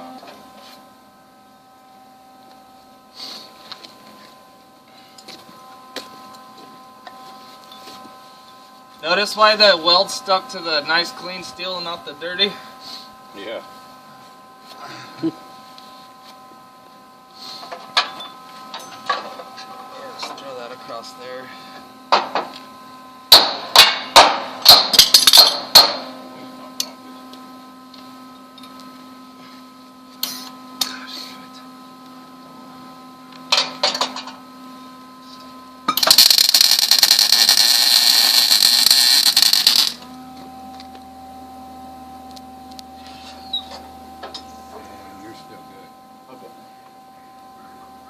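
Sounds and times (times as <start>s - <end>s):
welding arc crackle: 23.3s - 26.1s, 35.9s - 40.1s
hammer striking steel: 23.3s - 26.2s.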